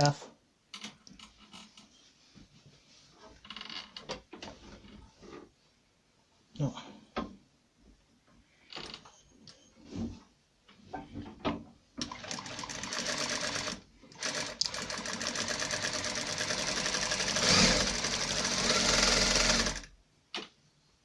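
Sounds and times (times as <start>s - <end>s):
sewing machine clicks: 12.0s - 19.9s
sewing machine stitching: 12.0s - 19.9s.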